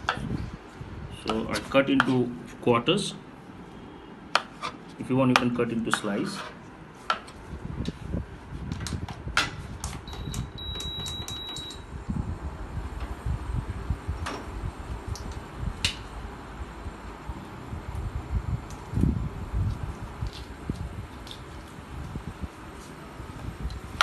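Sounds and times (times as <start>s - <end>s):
steady low rumble: 11.4s - 24.0s.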